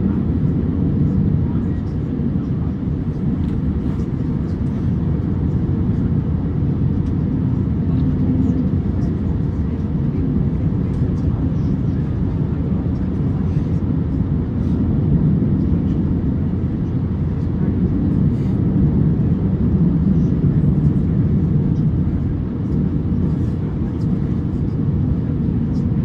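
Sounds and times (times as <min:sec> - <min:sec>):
aircraft cabin low rumble: 0:00.0 - 0:26.0.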